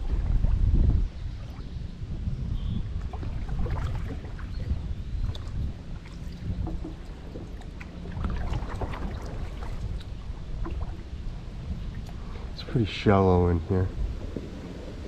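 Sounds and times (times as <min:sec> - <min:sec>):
wind on microphone: 0:00.0 - 0:15.0
paddle splashing in water: 0:02.9 - 0:12.6.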